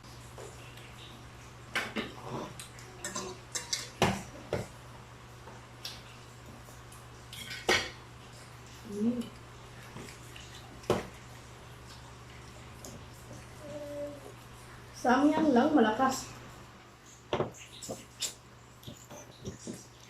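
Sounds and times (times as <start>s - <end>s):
dishes and cutlery clattering: 3.0s - 4.2s.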